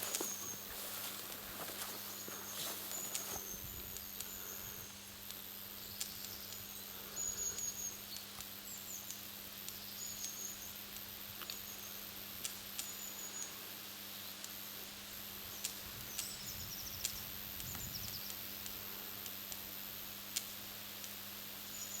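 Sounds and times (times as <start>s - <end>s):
birds chirping: 0.0s - 5.0s
power line humming: 0.0s - 8.0s
sharp electrical snaps and clicks: 12.3s - 13.0s, 15.6s - 16.3s, 16.9s - 21.2s.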